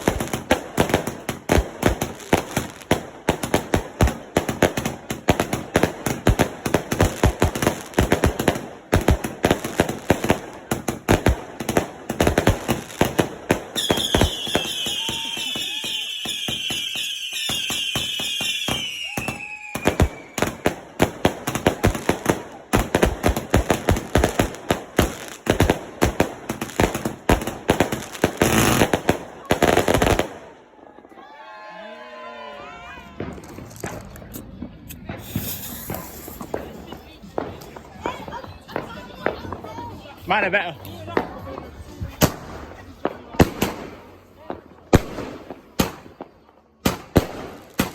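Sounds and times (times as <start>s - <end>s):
fireworks bangs and crackles: 0.0s - 31.1s, 32.8s - 47.9s
hissing firework whistle falling: 13.8s - 20.6s, 35.2s - 36.5s.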